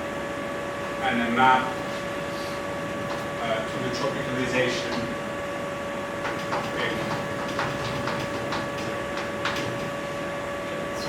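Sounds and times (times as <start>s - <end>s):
strokes and taps on board: 6.2s - 9.8s.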